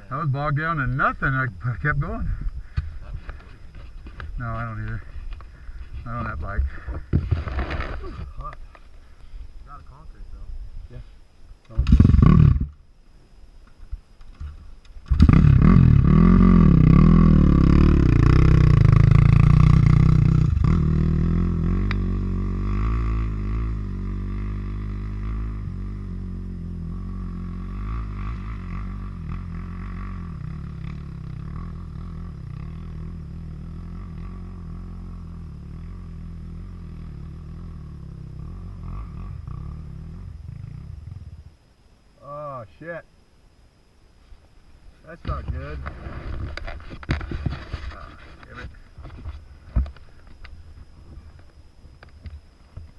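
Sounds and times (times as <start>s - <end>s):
dirt bike engine revving: 11.8s - 12.8s, 15.1s - 41.6s.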